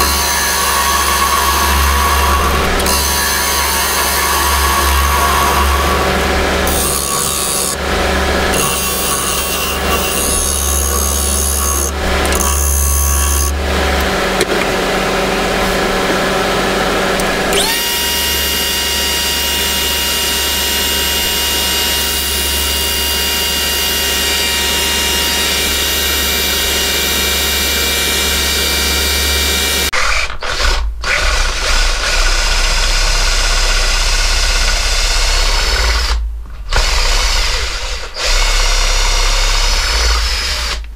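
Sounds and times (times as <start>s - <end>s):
high motor whine: 0.0s - 29.9s
power tool motor hum: 0.0s - 40.8s.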